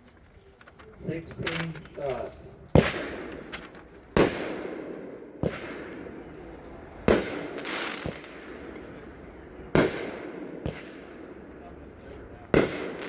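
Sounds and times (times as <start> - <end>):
firework bangs with crackling hiss: 2.7 - 11.6, 12.4 - 13.0.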